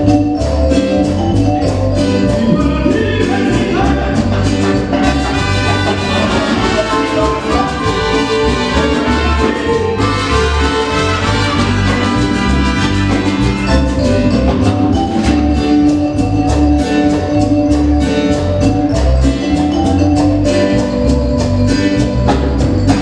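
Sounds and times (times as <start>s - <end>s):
latin dance band playing: 0.0s - 23.0s
steady percussion beat: 0.0s - 23.0s
brass: 2.5s - 15.4s.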